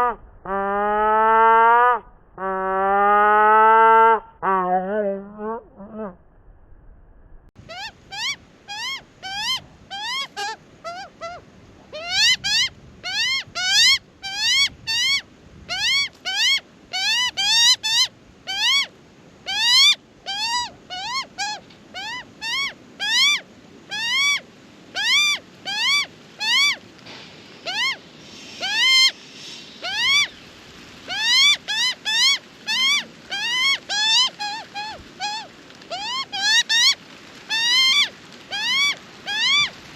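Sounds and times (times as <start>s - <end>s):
young magpie begging squawks: 7.6s - 18.9s, 19.5s - 24.4s, 25.0s - 26.8s, 27.6s - 29.2s, 29.8s - 30.4s, 31.1s - 39.7s.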